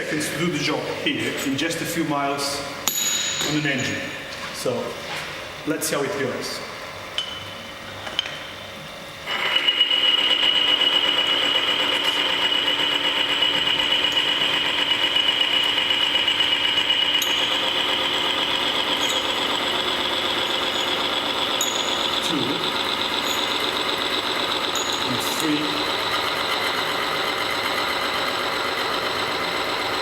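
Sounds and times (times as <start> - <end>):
machine high whine: 0.0 - 30.0
rattling grind: 13.4 - 29.5.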